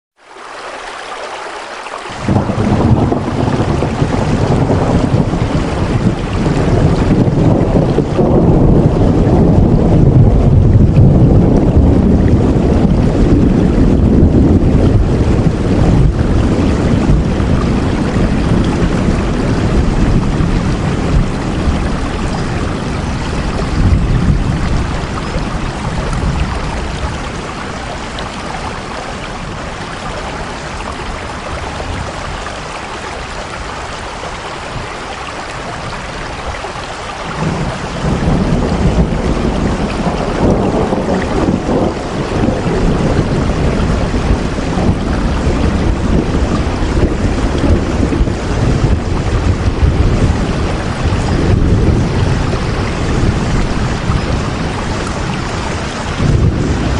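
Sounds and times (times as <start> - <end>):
steady rain: 0.2 - 56.9
deep low rumble: 2.2 - 26.4.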